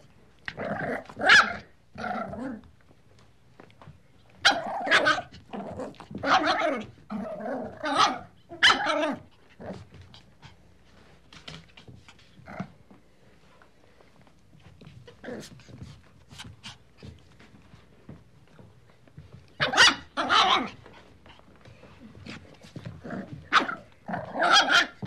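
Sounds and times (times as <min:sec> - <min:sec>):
dog barking: 0:07.9 - 0:09.0, 0:19.6 - 0:20.7, 0:23.5 - 0:23.8, 0:24.4 - 0:25.0.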